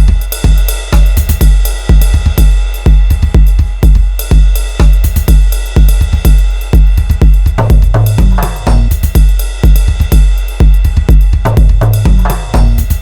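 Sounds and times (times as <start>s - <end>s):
booming kick drums: 0.0s - 13.0s
ticking hi-hats: 0.0s - 13.0s.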